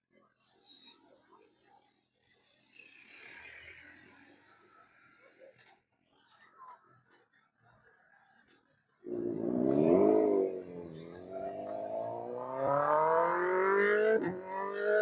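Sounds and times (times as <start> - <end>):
motorcycle engine accelerating: 9.0 - 15.0.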